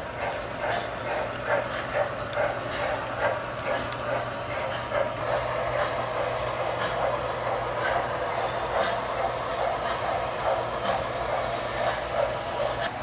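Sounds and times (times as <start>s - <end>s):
low electrical hum: 0.0s - 13.0s
model trains rumbling on track: 0.0s - 13.0s.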